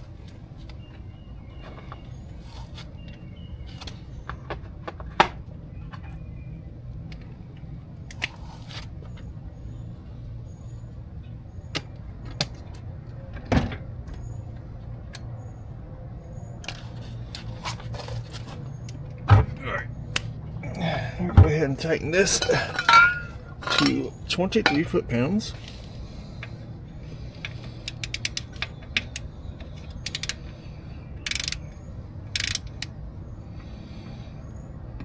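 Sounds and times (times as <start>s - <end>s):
steady low hum: 5.5s - 35.0s
hand tools clicking and knocking: 22.2s - 25.0s, 27.4s - 30.6s, 31.3s - 31.7s, 32.4s - 32.9s.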